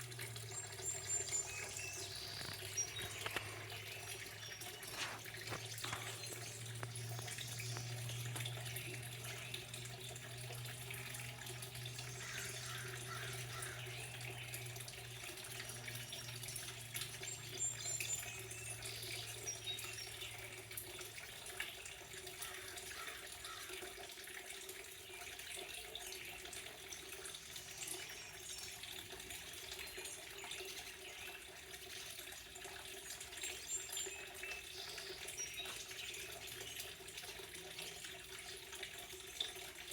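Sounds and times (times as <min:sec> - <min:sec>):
low steady hum: 0:00.0 - 0:22.2
running water: 0:00.0 - 0:39.9
high bird chirps: 0:00.6 - 0:05.0.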